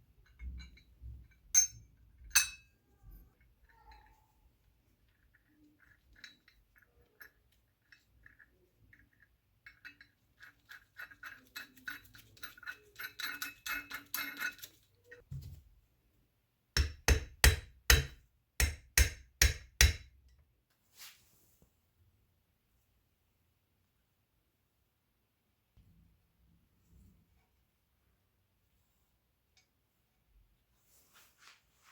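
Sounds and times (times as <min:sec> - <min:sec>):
metallic clinks and rattles: 0:05.0 - 0:15.2.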